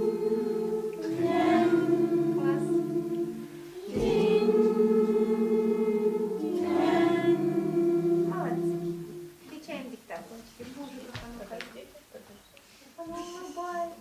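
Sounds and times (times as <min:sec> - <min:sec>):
voices chanting on held tones: 0:00.0 - 0:09.4.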